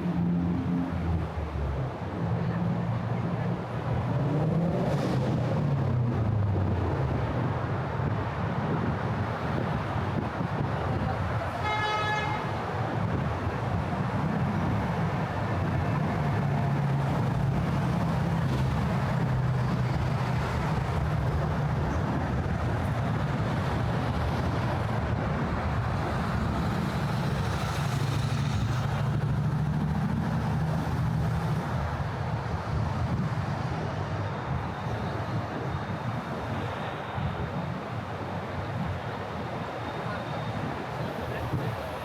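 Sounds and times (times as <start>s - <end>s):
road traffic passing: 0.0s - 42.0s.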